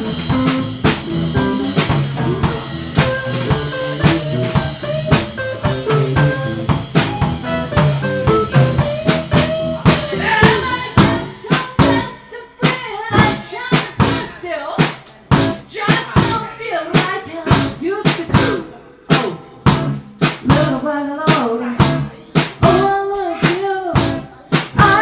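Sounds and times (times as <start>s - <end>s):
lead melody: 0.0s - 12.0s, 15.3s - 15.6s
bass line: 0.0s - 12.2s, 13.1s - 14.4s, 15.3s - 16.5s, 17.5s - 20.9s, 21.8s - 25.0s
drum kit beat: 0.0s - 25.0s.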